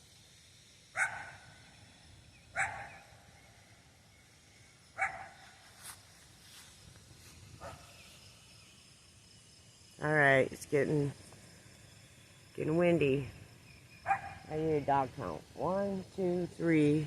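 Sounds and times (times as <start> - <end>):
dog barking: 1.0 - 1.4, 2.6 - 3.0, 5.0 - 5.4, 14.1 - 14.4.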